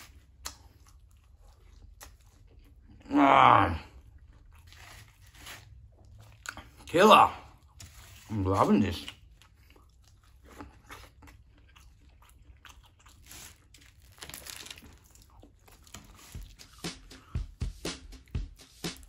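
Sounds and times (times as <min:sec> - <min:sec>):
person chewing pizza: 0:00.0 - 0:19.0
food crunches: 0:09.0 - 0:16.8.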